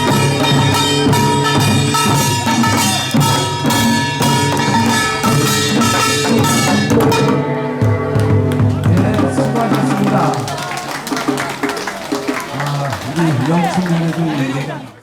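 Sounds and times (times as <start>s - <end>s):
ringing gongs: 0.0s - 9.9s
drums in steady rhythm: 0.0s - 10.6s.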